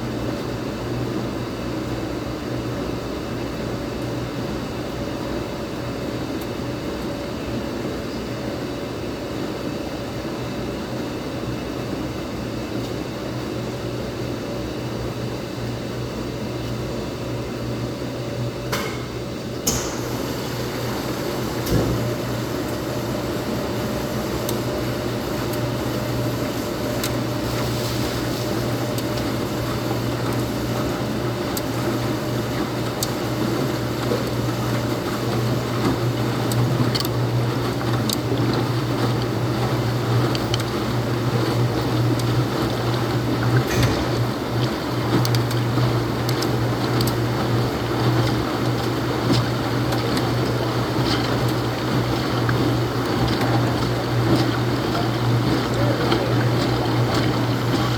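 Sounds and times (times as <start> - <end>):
washing machine humming: 0.0 - 57.9
thump: 43.7 - 44.3.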